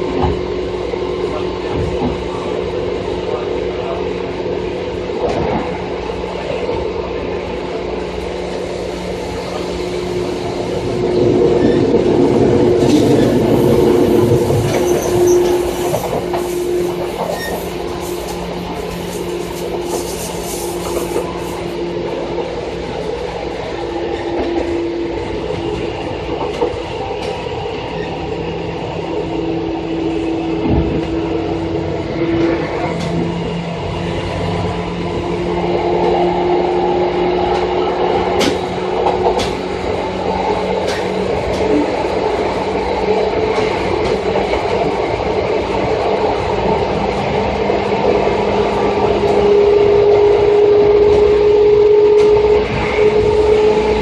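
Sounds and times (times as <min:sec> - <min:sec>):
train rolling rumble: 0:00.0 - 0:54.0
rail joint clicks: 0:08.2 - 0:28.4, 0:30.6 - 0:34.8, 0:35.9 - 0:36.3, 0:37.4 - 0:54.0.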